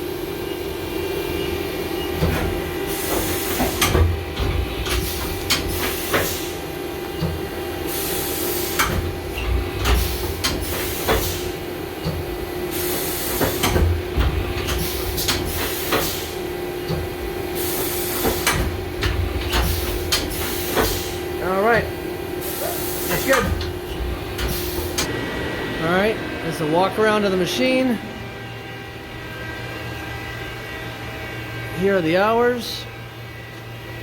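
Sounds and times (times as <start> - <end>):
steady machine hum: 0.0 - 34.0
compressed air hissing: 4.8 - 6.7, 7.7 - 9.0, 9.9 - 11.6, 12.6 - 13.8, 14.4 - 16.5, 17.5 - 18.7, 19.4 - 21.4, 22.4 - 25.1.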